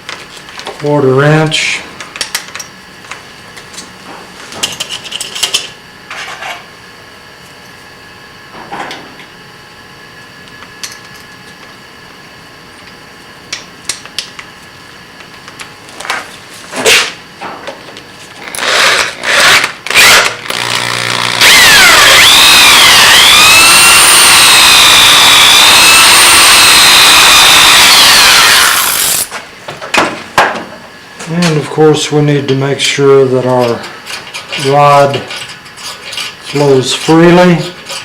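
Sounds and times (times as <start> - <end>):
faint motor hum: 0.0 - 37.9
electric drill cutting steel: 18.5 - 29.3.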